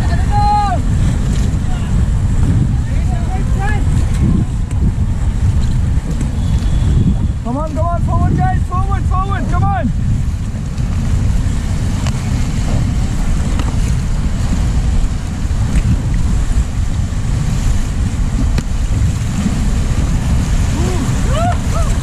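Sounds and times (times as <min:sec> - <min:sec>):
river water rushing: 0:00.0 - 0:22.0
wind buffeting microphone: 0:00.0 - 0:22.0.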